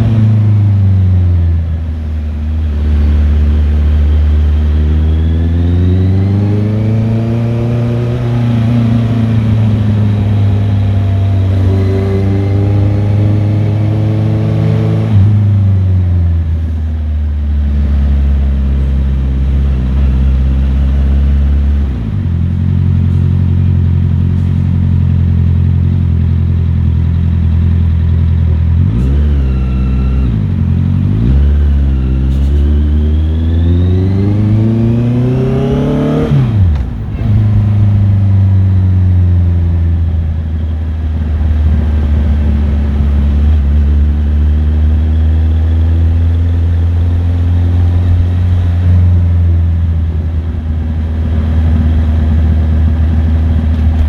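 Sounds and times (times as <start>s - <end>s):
motorcycle engine revving: 0.0s - 16.6s, 17.5s - 54.0s.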